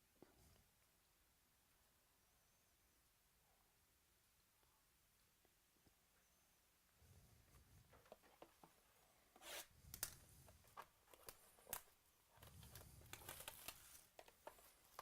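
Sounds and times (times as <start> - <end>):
card packaging crinkling and tearing: 11.1 - 15.0.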